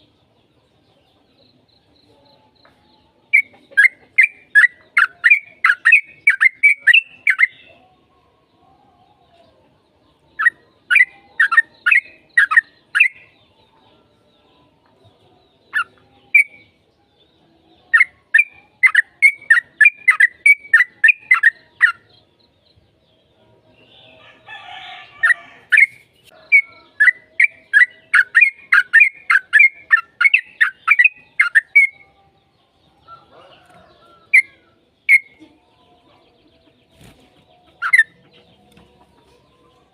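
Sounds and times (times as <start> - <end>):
bulbul singing: 3.3 - 7.7, 10.2 - 13.4, 15.4 - 16.9, 17.8 - 35.5.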